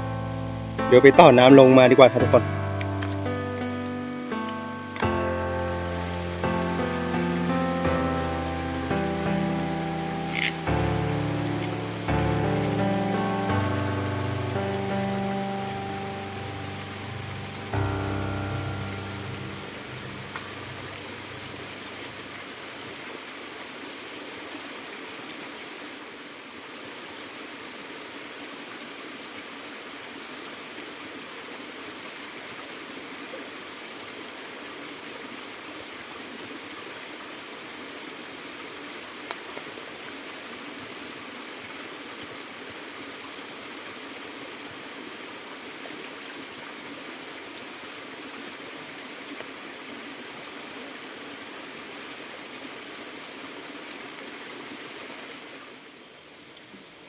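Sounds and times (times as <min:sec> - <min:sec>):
stream rushing: 0:00.0 - 0:35.5.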